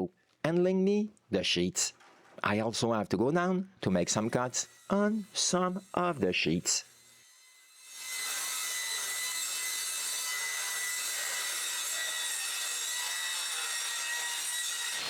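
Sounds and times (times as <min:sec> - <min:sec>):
power tool cutting metal sheet: 0:04.2 - 0:15.0.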